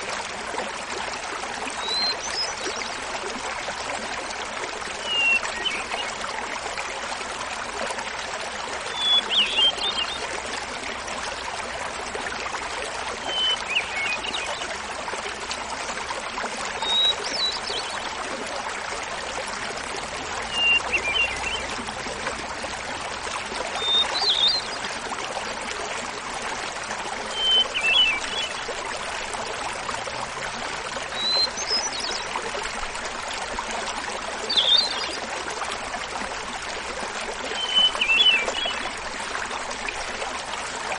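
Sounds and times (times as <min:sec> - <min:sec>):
small waterfall babbling: 0:00.0 - 0:40.9.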